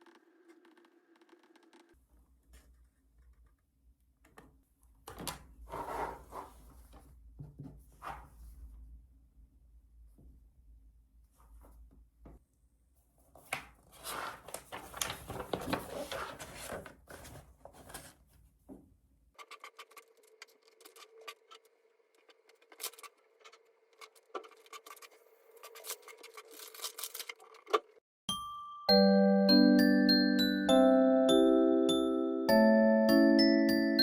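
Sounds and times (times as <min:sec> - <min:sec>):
rustling and crackling handling noise: 0:13.4 - 0:18.4.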